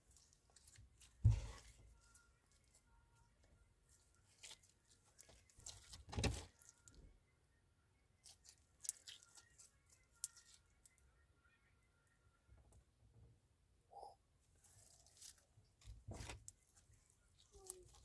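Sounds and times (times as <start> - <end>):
faint crackles and clicks: 8.2 - 11.0.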